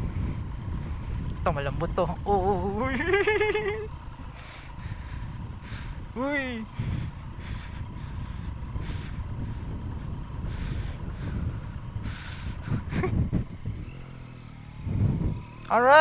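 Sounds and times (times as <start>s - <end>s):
motorcycle engine running: 0.0s - 16.0s
road and wind noise: 0.0s - 16.0s.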